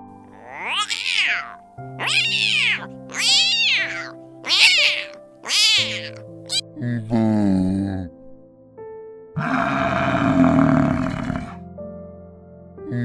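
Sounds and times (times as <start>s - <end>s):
soft background music: 0.0s - 13.0s
cat meowing: 0.3s - 6.6s.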